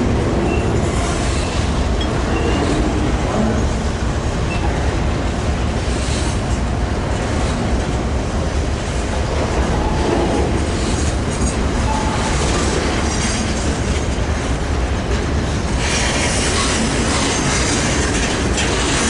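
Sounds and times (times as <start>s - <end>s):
freight train rumbling past: 0.0s - 19.0s
faint high wheel squeal: 0.4s - 0.8s, 2.3s - 2.8s
wheels clattering over rail joints: 5.9s - 19.0s.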